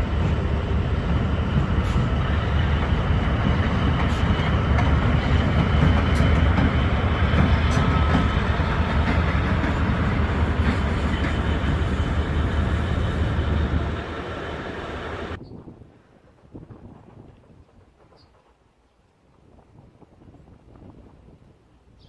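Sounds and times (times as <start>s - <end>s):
train rumbling past: 0.0s - 15.4s.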